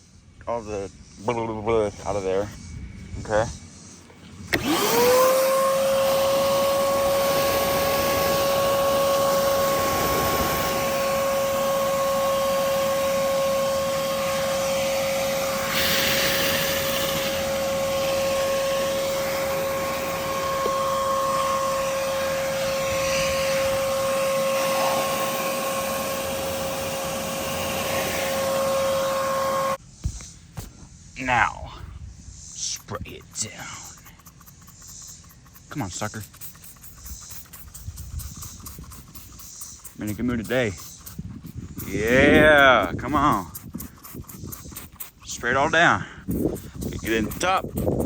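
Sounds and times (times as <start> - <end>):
vacuum cleaner whining: 4.0 - 30.7
rush of air: 14.6 - 28.8.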